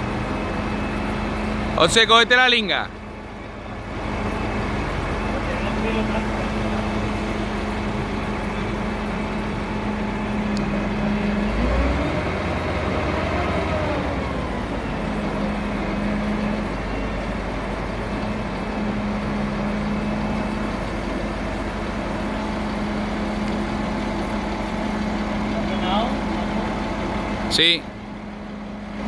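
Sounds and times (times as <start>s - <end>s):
hoisting engine running: 0.0s - 29.0s.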